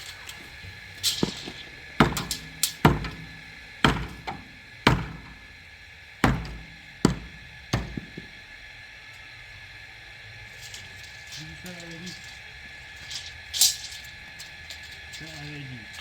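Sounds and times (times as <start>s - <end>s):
heavy blows on wood: 1.2s - 5.6s, 6.2s - 8.4s.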